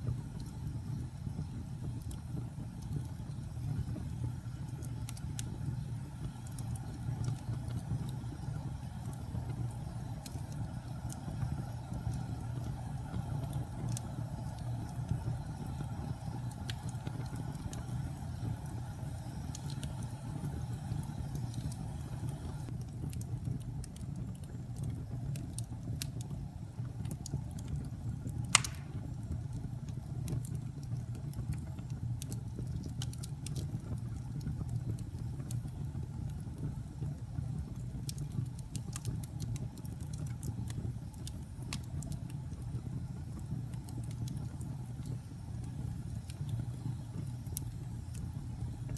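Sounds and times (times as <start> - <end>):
fire crackles: 0.0 - 48.9
fire rumbling: 0.0 - 48.9
sharp loud pop from fire: 28.5 - 29.1.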